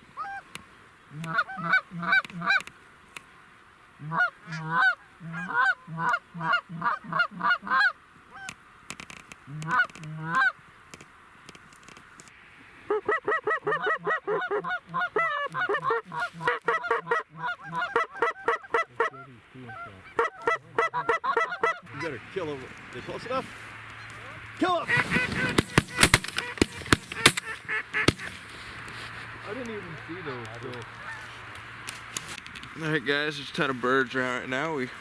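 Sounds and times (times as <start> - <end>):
goose calls honking: 1.1 - 2.7, 4.0 - 8.6, 9.5 - 10.6, 12.9 - 28.4, 30.9 - 31.5.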